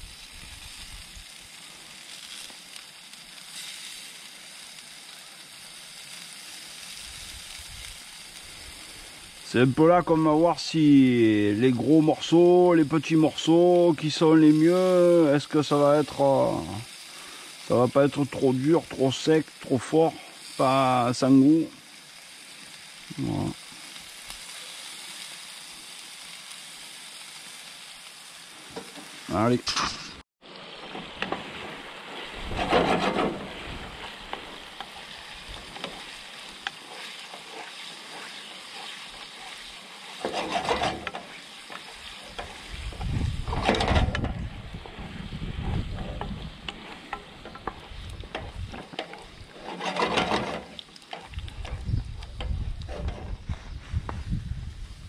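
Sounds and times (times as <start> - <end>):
fish sizzling in a pan: 0.0 - 53.8
utensil scraping a pan: 29.7 - 51.8, 52.4 - 53.8.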